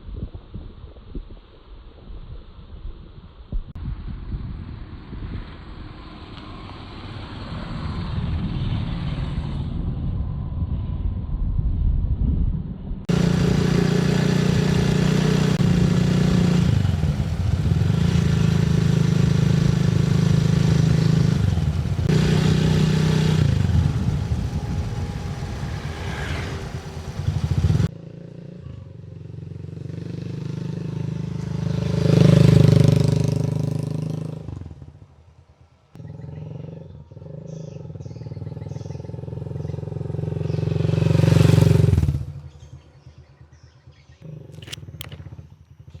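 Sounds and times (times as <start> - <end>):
motor vehicle engine running: 13.1 - 27.9.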